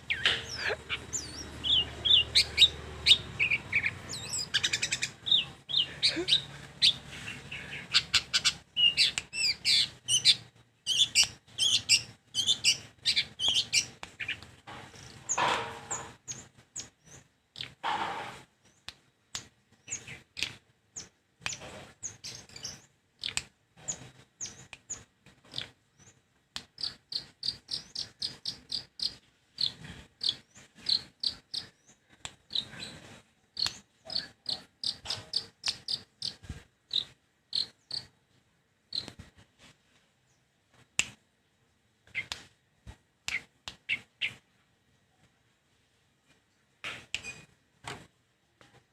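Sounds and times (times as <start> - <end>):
bird chattering song: 0.0 - 17.8, 19.8 - 33.0, 33.6 - 38.1, 38.9 - 39.2, 42.1 - 42.4, 43.3 - 44.4.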